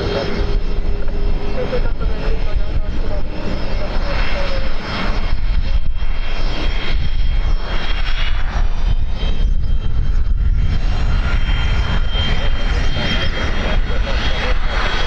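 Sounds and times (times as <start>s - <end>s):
airliner engines rumbling: 0.0s - 15.0s
high engine whine: 0.0s - 15.0s.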